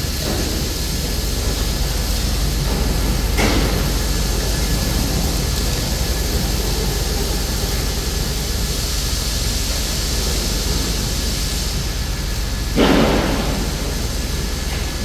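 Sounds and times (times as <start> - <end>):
welding machine drone and hiss: 0.0 - 15.0.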